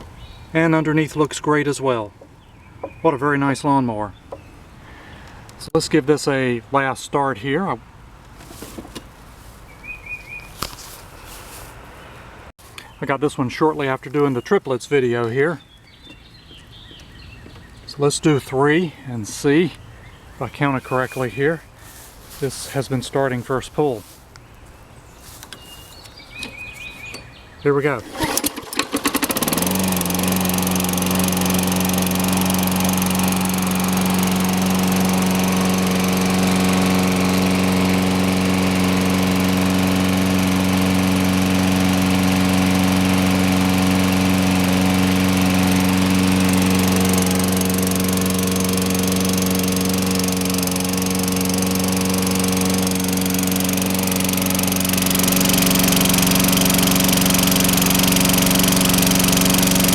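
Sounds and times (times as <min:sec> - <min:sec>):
lawn mower engine running: 0:27.9 - 0:59.9.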